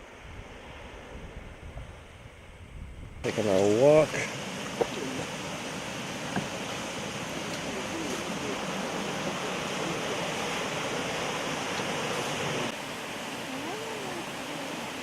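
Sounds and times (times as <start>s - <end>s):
creek water flowing: 3.2s - 15.0s.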